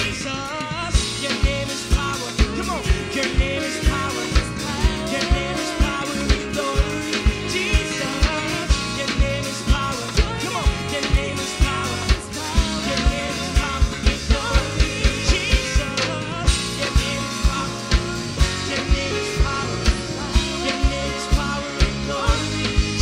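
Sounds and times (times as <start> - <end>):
live band music: 0.0 - 23.0
person singing: 0.0 - 23.0
fast kick-drum beat: 0.8 - 23.0.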